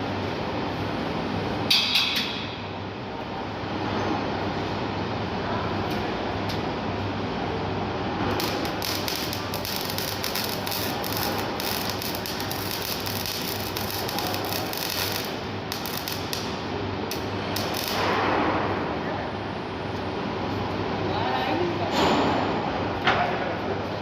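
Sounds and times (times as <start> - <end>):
steady low hum: 0.0 - 24.0
arc welding crackling sizzle: 8.1 - 18.2.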